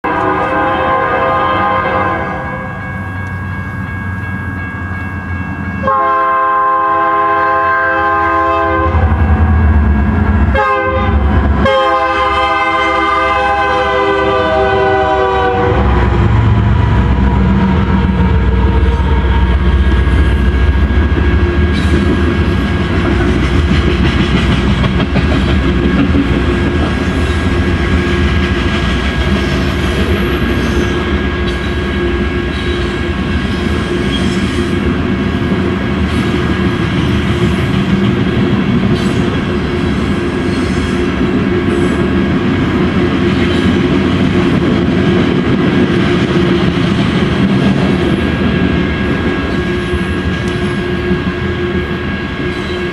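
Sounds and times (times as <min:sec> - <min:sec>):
locomotive horn blasts: 0:00.0 - 0:02.8, 0:05.8 - 0:09.6, 0:10.5 - 0:20.6
train rumbling and clattering: 0:00.0 - 0:52.9.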